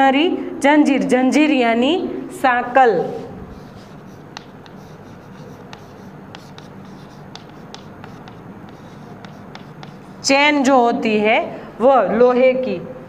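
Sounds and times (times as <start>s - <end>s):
chalk scratching on blackboard: 3.1s - 10.3s
chalk tapping: 3.1s - 10.3s.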